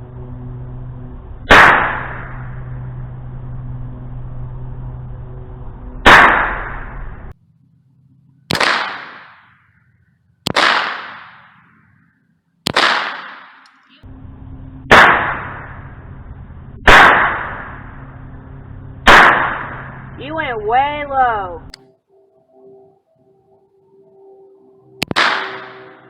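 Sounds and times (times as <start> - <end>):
gunshots: 1.5 - 2.4, 6.0 - 6.9, 8.5 - 9.6, 10.5 - 11.7, 12.7 - 13.8, 14.9 - 15.8, 16.9 - 17.8, 19.0 - 20.0, 25.0 - 26.0.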